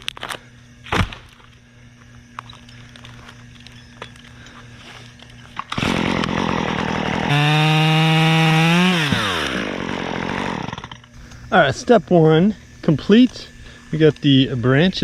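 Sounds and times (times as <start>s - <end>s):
chainsaw revving: 5.6s - 11.0s.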